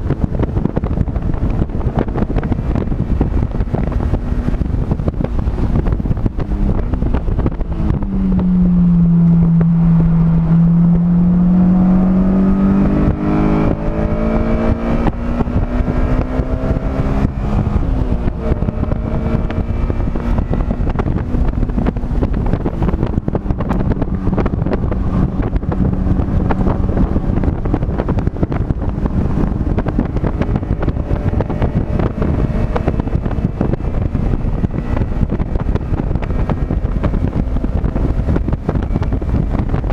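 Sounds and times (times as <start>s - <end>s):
car engine accelerating: 0.0s - 39.9s
road noise: 0.0s - 39.9s
wind buffeting microphone: 0.0s - 39.9s.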